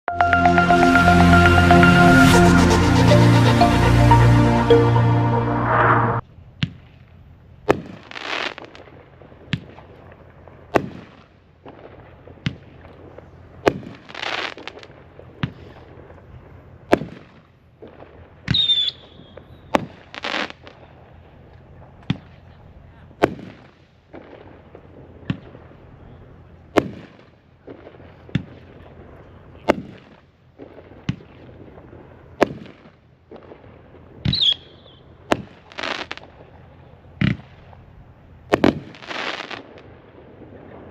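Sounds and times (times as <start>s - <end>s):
falling whistle: 18.5s - 19.4s
firework bangs: 38.5s - 40.6s.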